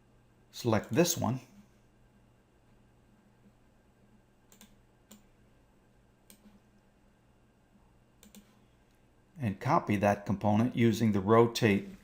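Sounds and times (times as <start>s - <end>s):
low steady hum: 0.0s - 12.0s
computer mouse clicks: 4.5s - 5.3s, 6.2s - 6.8s, 8.2s - 8.6s.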